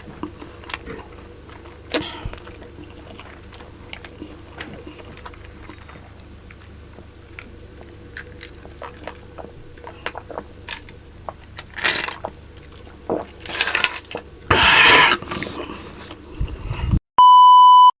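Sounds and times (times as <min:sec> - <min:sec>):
chewing with mouth clicks: 0:00.0 - 0:16.2
noisy mouth sounds: 0:01.8 - 0:06.6, 0:14.5 - 0:17.0
steady electronic beep: 0:17.2 - 0:17.9.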